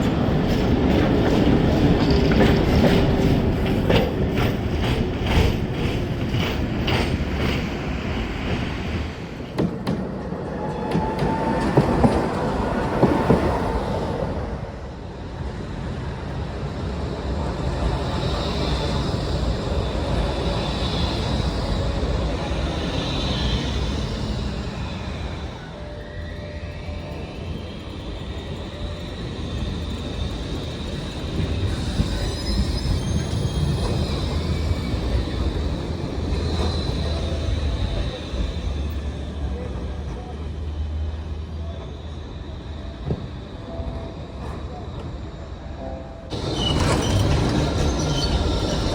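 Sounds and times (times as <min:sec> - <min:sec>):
tram wheels clacking over rail joints: 0:00.0 - 0:14.4, 0:26.2 - 0:41.0, 0:46.3 - 0:48.9
tram rumbling: 0:00.0 - 0:48.9
high-pitched wheel squeal: 0:25.2 - 0:39.7, 0:46.3 - 0:48.9.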